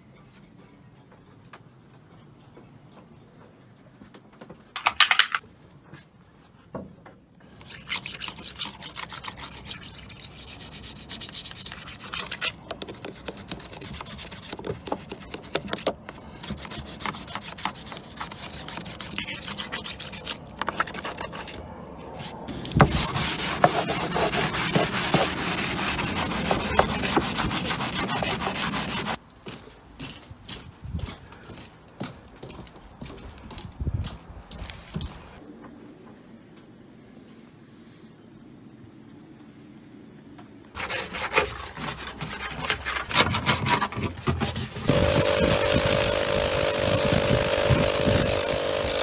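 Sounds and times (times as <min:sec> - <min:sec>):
sanding a surface: 0:07.9 - 0:21.6, 0:22.7 - 0:29.2, 0:40.8 - 0:49.0.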